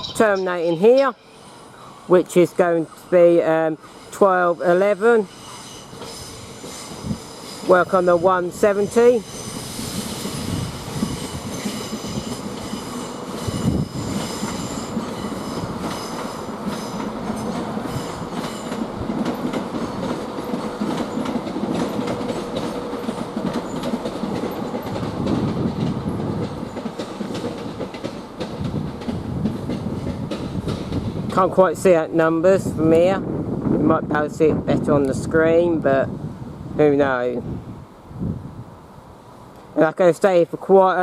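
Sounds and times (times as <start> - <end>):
wheel and brake squeal: 3.8 - 7.7, 9.2 - 18.8
train wheels clicking over rail joints: 3.8 - 31.6.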